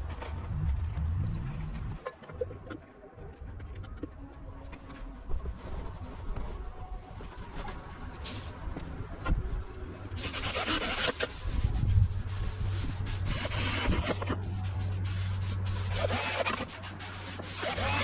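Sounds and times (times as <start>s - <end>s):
rubbing and scraping strokes: 10.2s - 18.0s.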